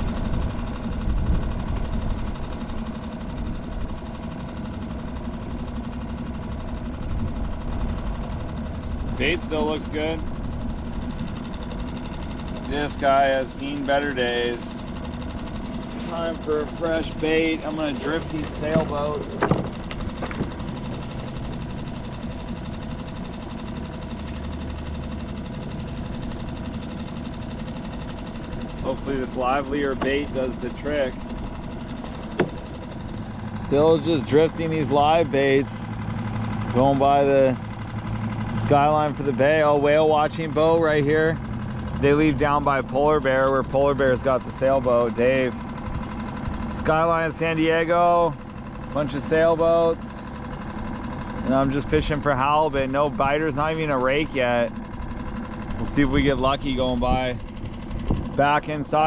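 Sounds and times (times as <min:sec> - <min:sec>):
boat motor running: 0:00.0 - 0:59.0.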